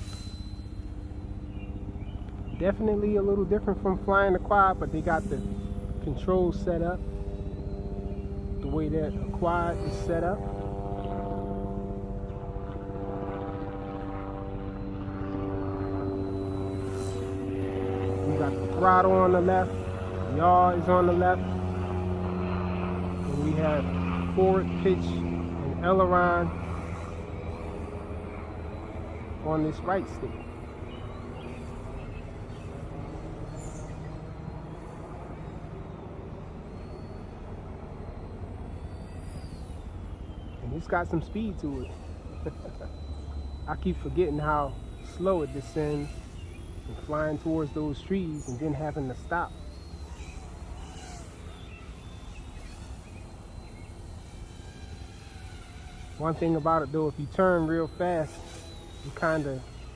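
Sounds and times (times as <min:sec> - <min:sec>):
steady low rumble: 0:00.0 - 0:15.8
model helicopter buzzing hum: 0:00.0 - 0:59.9.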